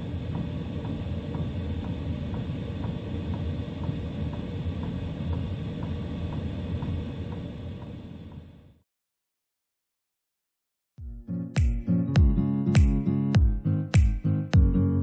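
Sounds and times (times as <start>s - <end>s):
blower fan rumble: 0.0s - 8.8s.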